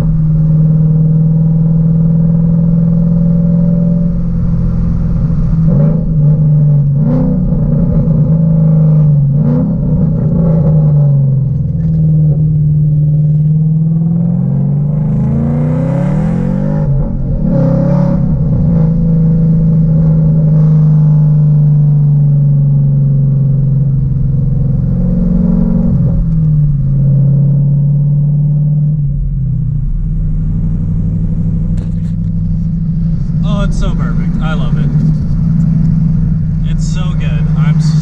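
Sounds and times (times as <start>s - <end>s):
loud exhaust drone revving: 12.2s - 38.0s.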